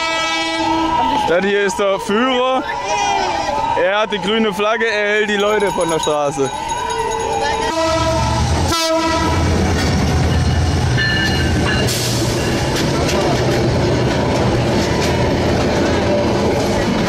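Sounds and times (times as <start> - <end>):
train horn: 0.0 - 1.2, 7.7 - 9.6
train wagons rumbling on track: 0.0 - 17.0.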